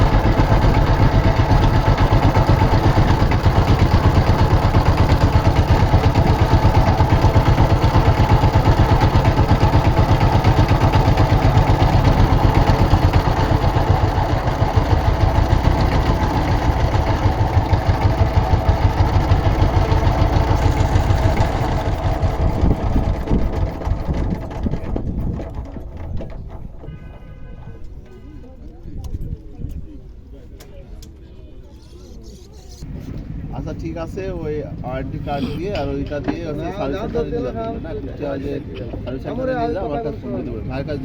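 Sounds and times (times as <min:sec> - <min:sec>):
motorboat engine throbbing: 0:00.0 - 0:28.1.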